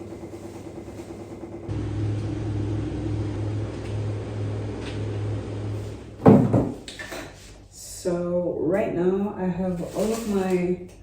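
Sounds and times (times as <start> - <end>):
low steady rumble: 0.1 - 6.9.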